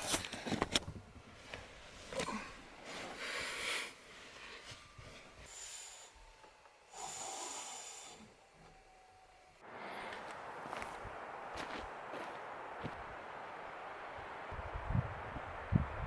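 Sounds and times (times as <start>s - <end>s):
person breathing raspily: 2.2s - 4.4s, 6.9s - 8.3s.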